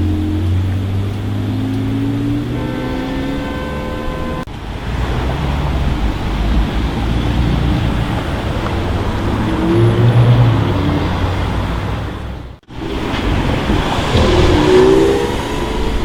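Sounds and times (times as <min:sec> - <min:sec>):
street traffic: 0:00.0 - 0:16.0
car engine running: 0:10.7 - 0:16.0.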